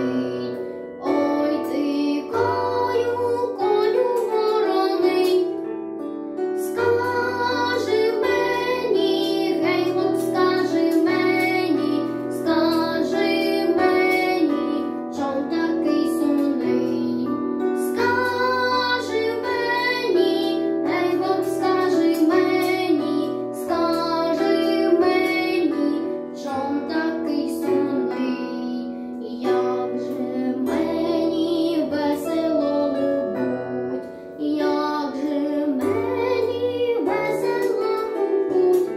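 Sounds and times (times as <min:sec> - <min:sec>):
boy singing: 0:00.0 - 0:05.6, 0:06.6 - 0:38.9
instrumental backing track: 0:00.0 - 0:38.9.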